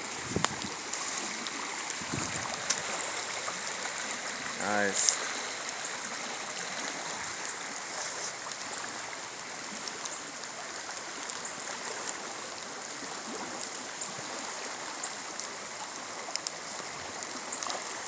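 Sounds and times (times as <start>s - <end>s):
creek rushing: 0.0s - 18.0s
faint ticks: 15.0s - 18.0s.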